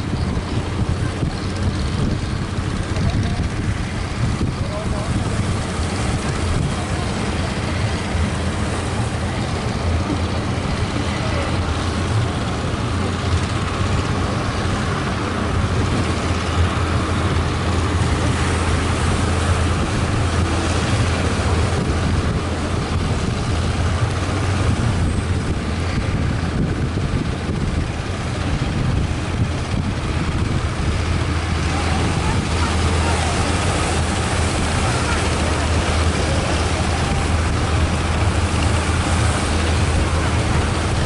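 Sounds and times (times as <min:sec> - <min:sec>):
boat engine droning: 0:00.0 - 0:41.0
rush of wind and water: 0:00.0 - 0:41.0.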